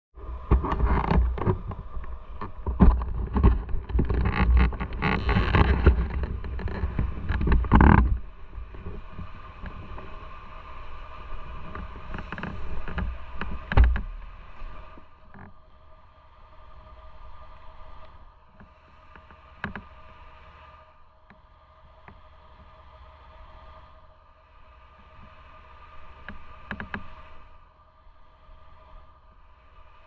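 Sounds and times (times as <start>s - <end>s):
wind buffeting microphone: 0.2s - 15.4s
thump: 13.7s - 14.3s.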